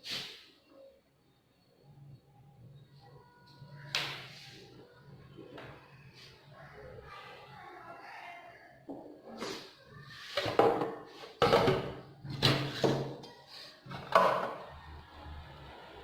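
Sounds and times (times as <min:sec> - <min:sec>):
hard objects knocking and clattering: 0:10.4 - 0:13.3, 0:13.9 - 0:14.6.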